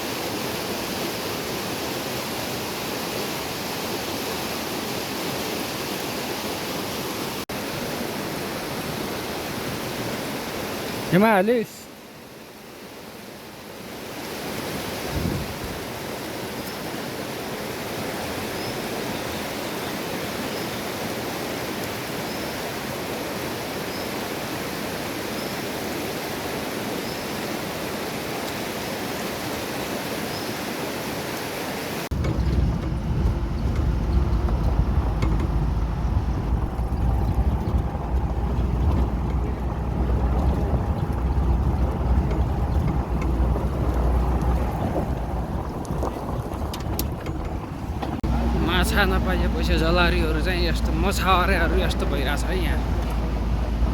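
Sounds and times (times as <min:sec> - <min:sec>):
river water flowing: 0:00.0 - 0:53.9
low rumble: 0:32.1 - 0:53.9.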